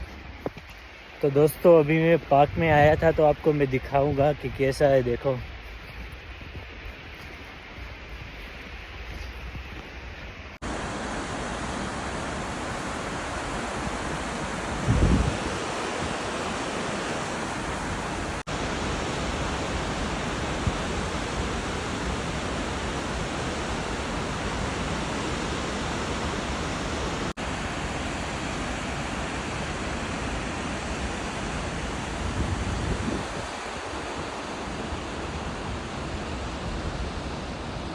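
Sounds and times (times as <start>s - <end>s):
waterfall rushing: 10.6s - 37.9s.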